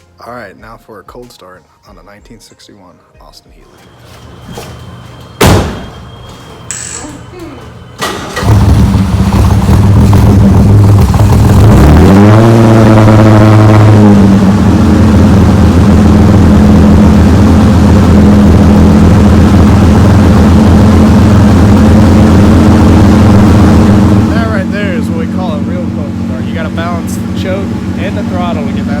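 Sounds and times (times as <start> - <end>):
car engine revving and idling: 8.0 - 29.0.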